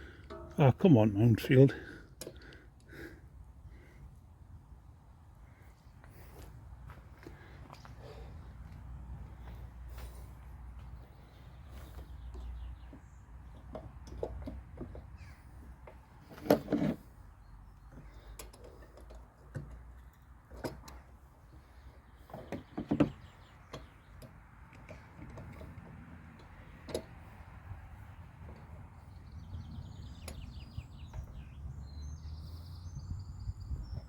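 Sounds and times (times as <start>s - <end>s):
clunks of tools and parts: 0.1s - 0.6s
birds chirping: 4.8s - 16.4s, 20.9s - 34.0s.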